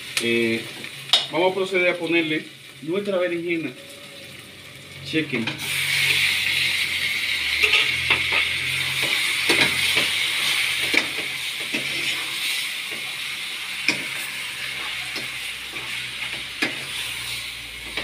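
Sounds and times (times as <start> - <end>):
food sizzling in frying pan: 0.0 - 18.0
spoon scraping pan: 7.6 - 13.1.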